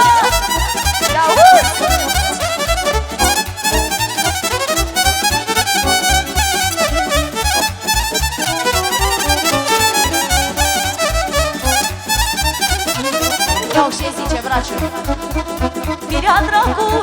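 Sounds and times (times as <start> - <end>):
fiddle melody: 0.0 - 17.0
folk band playing dance tune: 0.0 - 17.0.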